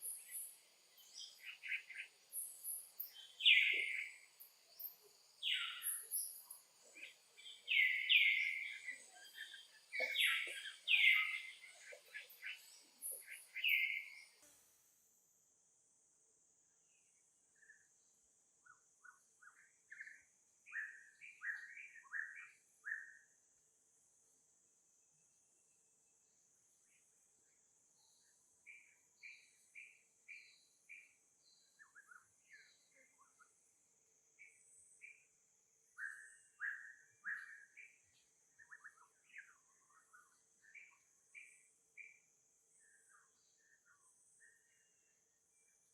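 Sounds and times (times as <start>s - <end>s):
faint bird chirps: 0.0s - 15.5s, 16.6s - 45.9s
short chirping calls: 7.5s - 14.2s.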